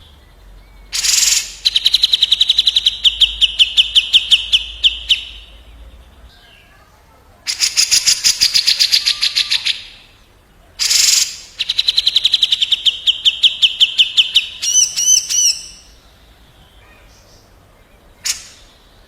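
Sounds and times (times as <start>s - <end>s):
whistled bird notes: 0.0s - 6.9s, 7.5s - 10.2s, 10.8s - 19.0s
songbirds rolling trills: 0.0s - 19.0s
harsh bird call burst: 0.9s - 5.6s, 7.5s - 10.2s, 10.8s - 16.1s, 18.2s - 19.0s.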